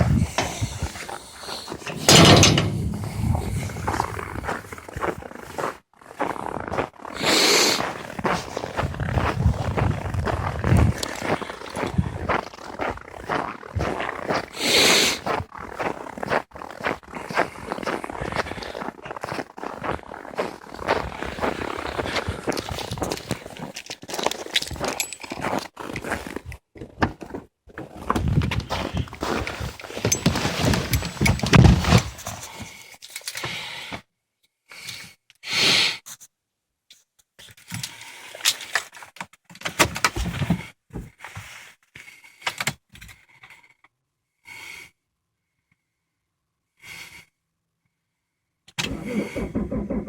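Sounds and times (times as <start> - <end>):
handling clicks and knocks: 1.7 - 4.5, 29.9 - 32.4.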